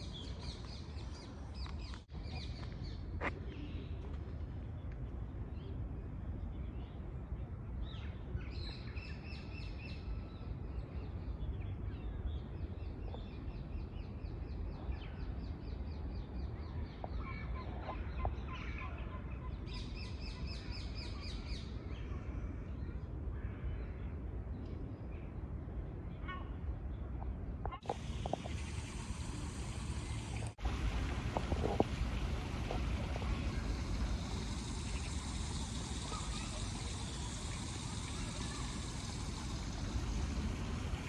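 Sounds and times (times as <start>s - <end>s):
songbirds trilling: 27.8s - 41.0s
steady low rumble: 27.9s - 41.0s.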